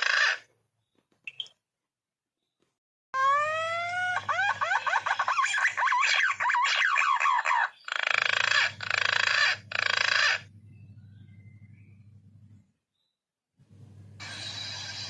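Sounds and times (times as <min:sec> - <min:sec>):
low steady hum: 0:10.4 - 0:12.7, 0:13.7 - 0:15.0.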